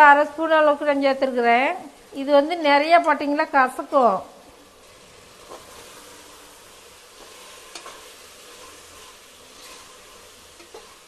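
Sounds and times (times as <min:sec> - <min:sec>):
masala sizzling in oil: 0:00.0 - 0:11.0
spoon scraping a pot: 0:07.1 - 0:11.0.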